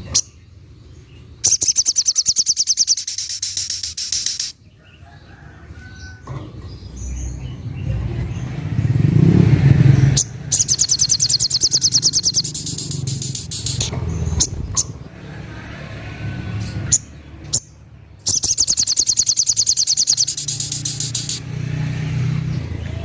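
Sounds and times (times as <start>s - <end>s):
passing vehicle rumble: 0.0s - 23.0s
bird rattling trill: 1.5s - 4.6s, 10.2s - 15.0s, 18.3s - 21.4s.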